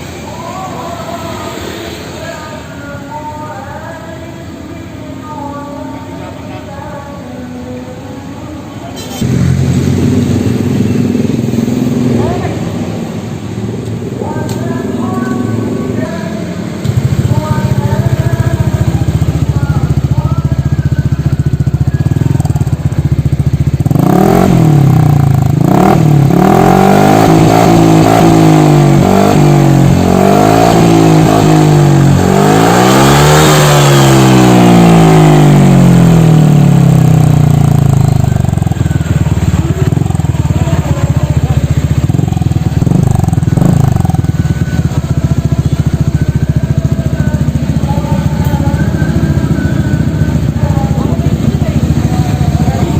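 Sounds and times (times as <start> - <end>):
scooter engine idling and revving: 0.0 - 52.9.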